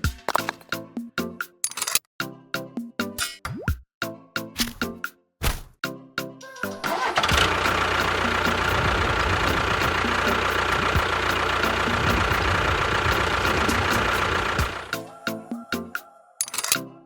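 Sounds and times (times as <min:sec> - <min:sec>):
engine running with whine: 0:06.8 - 0:15.0.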